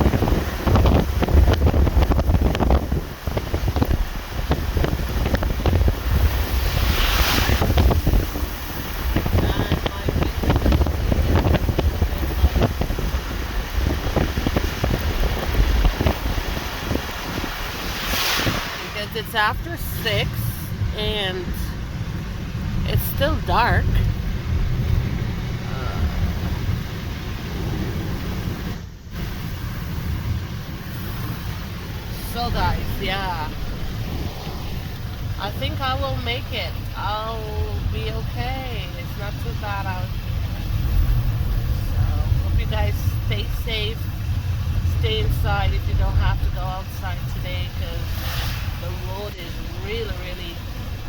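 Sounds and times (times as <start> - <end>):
road and wind rumble: 0.0 - 51.0
hiss of slush: 6.5 - 7.8, 17.8 - 19.0, 48.1 - 48.9.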